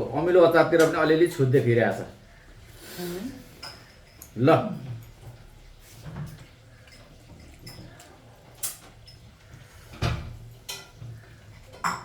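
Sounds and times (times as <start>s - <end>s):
dishes and utensils clinking: 3.4s - 12.0s.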